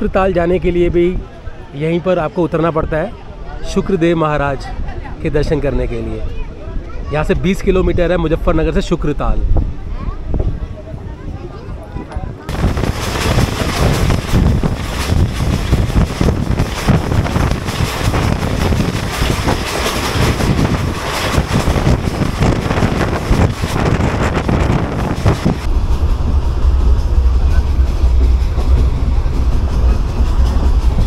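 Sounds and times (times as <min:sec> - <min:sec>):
wind buffeting microphone: 0:06.2 - 0:31.0
train wheels clattering on track: 0:12.5 - 0:31.0.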